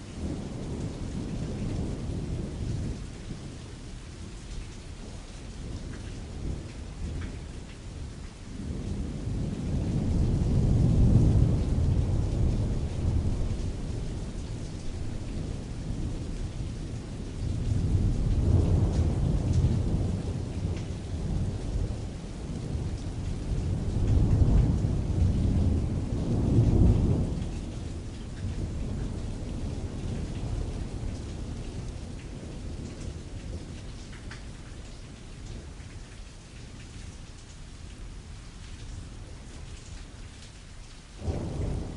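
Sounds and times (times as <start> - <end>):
rain pattering on canvas: 0.0 - 41.9
distant thunder rolling: 5.1 - 34.6, 41.2 - 41.9.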